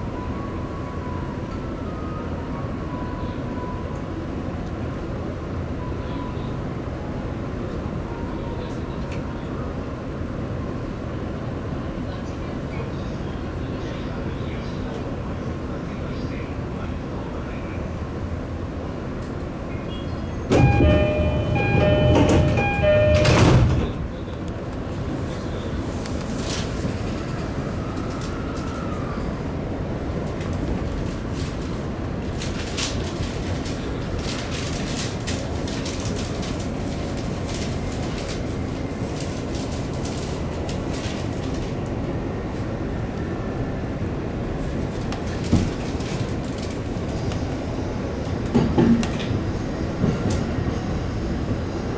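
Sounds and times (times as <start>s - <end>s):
two-note electronic door chime: 20.5s - 24.0s
sliding doors shutting with thud: 20.5s - 24.3s
stopped train humming: 20.5s - 25.8s, 46.0s - 51.9s
train wheels rumbling on rail: 20.5s - 51.9s.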